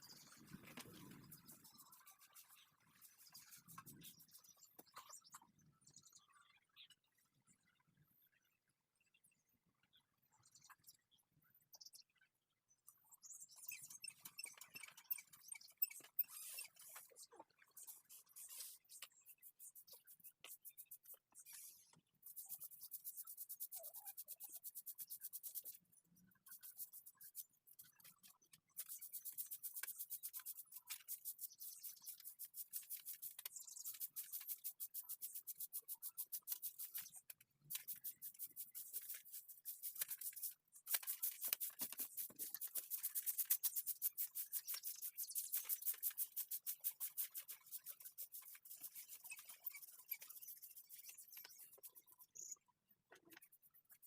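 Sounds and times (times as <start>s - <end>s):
drawing tool scratching on paper: 17.8s - 52.4s.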